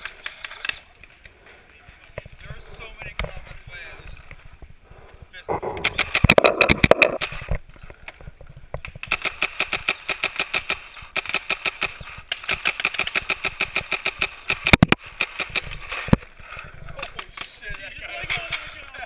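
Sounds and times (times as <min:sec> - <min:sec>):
sharp crack: 0:08.8 - 0:16.2.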